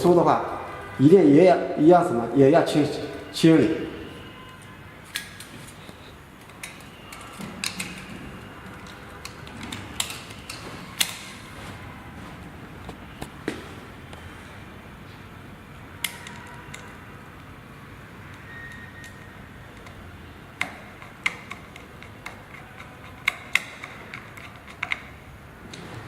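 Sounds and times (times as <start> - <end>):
parts clicking and knocking: 4.5 - 11.6, 16.0 - 17.5, 18.3 - 26.0.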